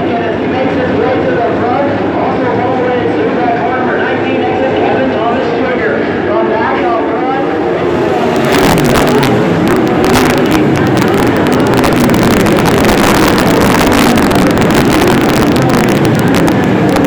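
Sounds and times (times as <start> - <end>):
race car engines at full throttle: 0.0 - 17.0.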